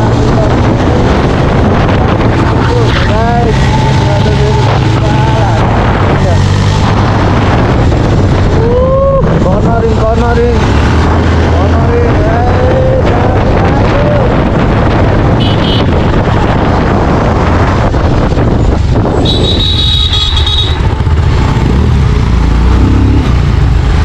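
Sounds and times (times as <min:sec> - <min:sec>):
wind noise on microphone: 0:00.0 - 0:24.0
motorcycle engine running: 0:15.0 - 0:24.0.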